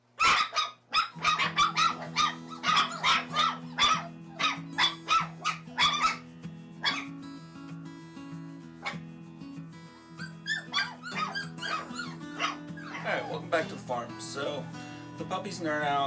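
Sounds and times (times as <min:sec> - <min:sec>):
puppies yipping and barking: 0:00.2 - 0:07.2, 0:08.8 - 0:09.0, 0:10.2 - 0:13.7
background music with low notes: 0:01.4 - 0:16.0.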